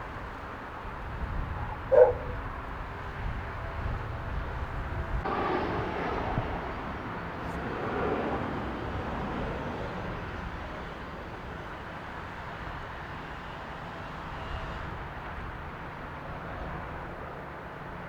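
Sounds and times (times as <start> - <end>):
wind buffeting microphone: 0.0 - 11.3
jet engine rumble: 1.5 - 11.8.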